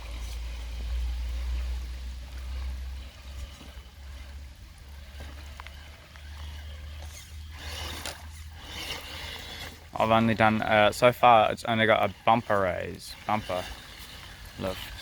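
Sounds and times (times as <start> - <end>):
running water: 0.0 - 15.0.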